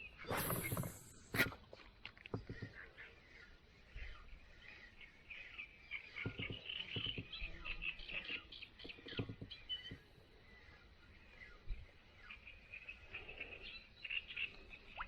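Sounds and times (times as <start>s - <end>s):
small birds chirping: 0.0s - 15.0s
soft knocks: 6.2s - 7.6s.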